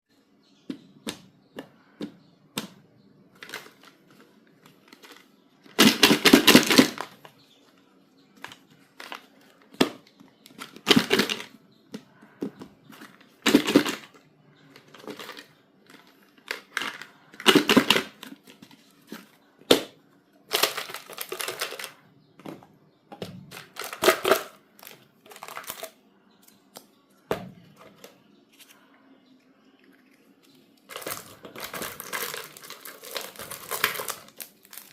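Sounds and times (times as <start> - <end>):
packaging crinkling: 20.5 - 22.0, 23.5 - 25.9, 30.9 - 34.9.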